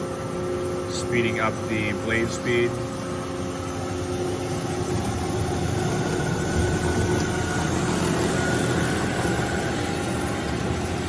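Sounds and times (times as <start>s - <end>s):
bandsaw running: 4.2s - 11.0s.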